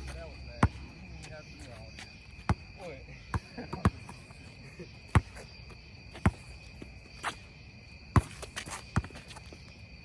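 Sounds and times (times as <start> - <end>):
insects droning: 0.0 - 10.0
basketball bouncing: 2.4 - 4.2, 5.1 - 5.4, 6.2 - 7.0, 8.1 - 9.3.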